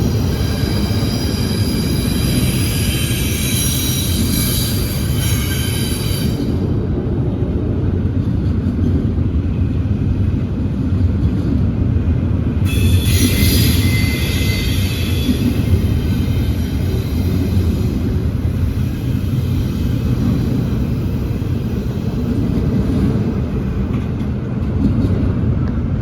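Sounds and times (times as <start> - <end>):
train rumbling on rails: 0.0 - 26.0
wheel squeal: 12.7 - 17.8.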